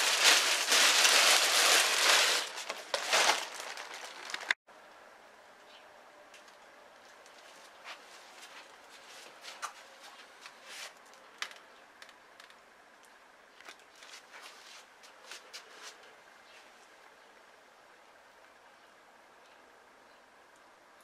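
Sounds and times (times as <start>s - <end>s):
objects being handled: 0.0s - 4.6s.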